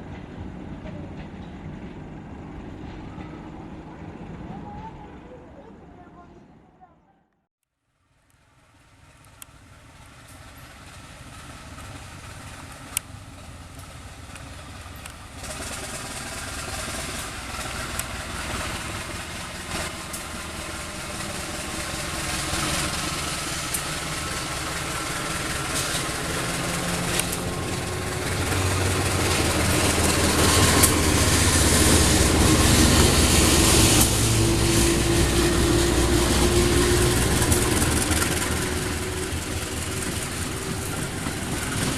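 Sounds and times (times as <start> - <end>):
diesel locomotive engine drone: 0.0 - 7.3, 8.2 - 41.9
train clicks: 9.1 - 41.9.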